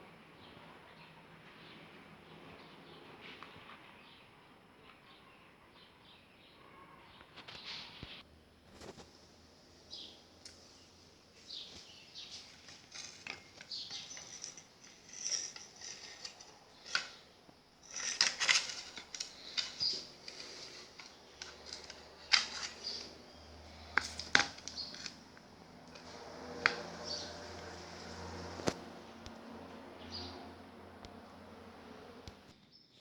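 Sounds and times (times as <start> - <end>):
small hard objects clicking: 12.6 - 17.2, 17.8 - 27.8.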